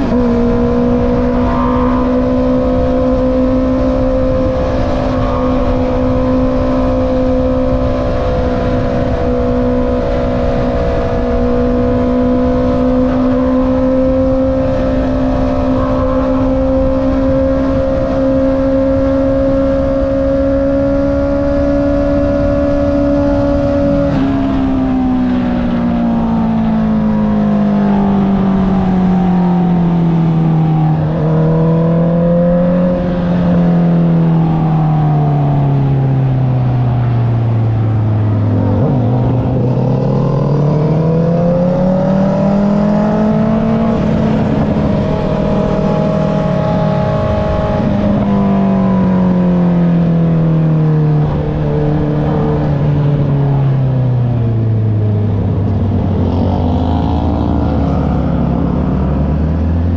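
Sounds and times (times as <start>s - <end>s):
wind rushing: 0.0s - 19.6s, 37.3s - 50.4s
motorcycle engine revving: 0.0s - 59.9s.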